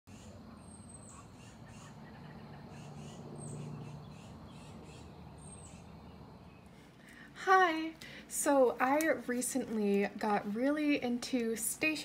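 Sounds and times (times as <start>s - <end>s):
birds singing: 0.1s - 6.9s.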